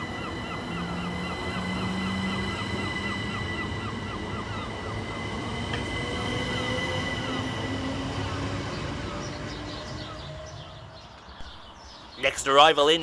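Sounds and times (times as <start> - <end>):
low tone rising in pitch: 0.0 - 10.8
electric train equipment whining: 0.0 - 11.3.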